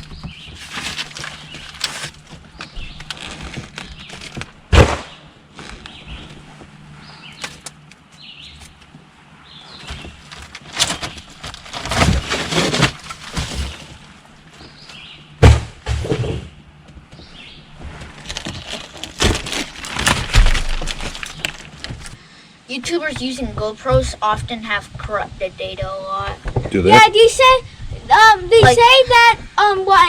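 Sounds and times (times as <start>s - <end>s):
material cracking and clattering: 0.0s - 6.0s, 9.8s - 15.6s, 18.1s - 22.2s
sharp bang: 4.7s - 5.4s, 15.4s - 16.4s.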